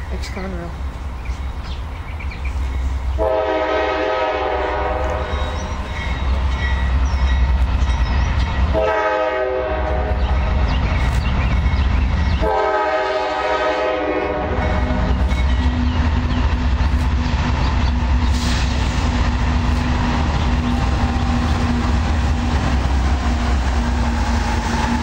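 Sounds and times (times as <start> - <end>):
locomotive horn chord blasts: 3.2 - 5.5, 8.7 - 10.2, 12.4 - 15.0
diesel engine rumble: 14.5 - 25.0.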